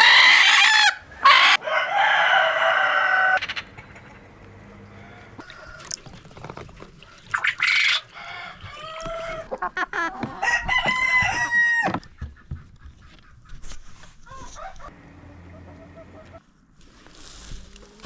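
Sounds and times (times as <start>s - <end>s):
rooster crowing: 0.0s - 3.4s, 4.9s - 6.0s, 8.1s - 9.4s, 10.4s - 11.9s
chickens clucking and squawking: 0.0s - 5.8s, 7.1s - 16.4s.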